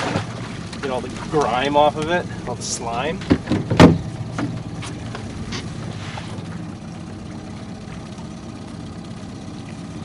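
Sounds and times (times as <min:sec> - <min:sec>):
boat motor running: 0:00.0 - 0:10.0.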